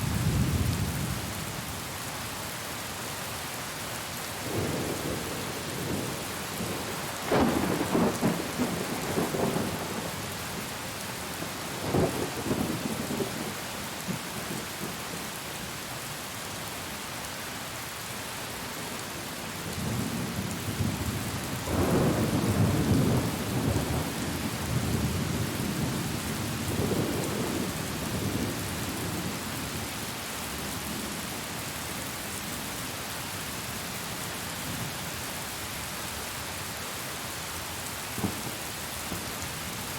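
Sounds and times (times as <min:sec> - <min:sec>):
heavy rain: 0:00.0 - 0:39.9
rolling thunder: 0:04.5 - 0:10.2, 0:19.8 - 0:26.2.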